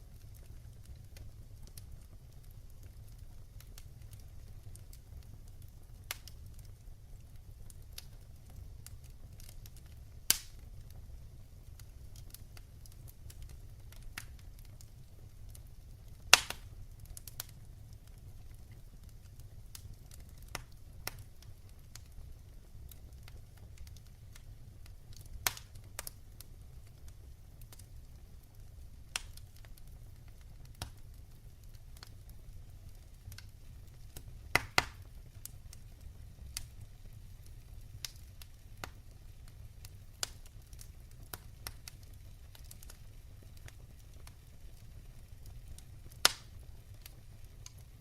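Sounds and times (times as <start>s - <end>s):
low rumble of flames: 0.0s - 48.0s
wood fire crackling: 0.0s - 48.0s.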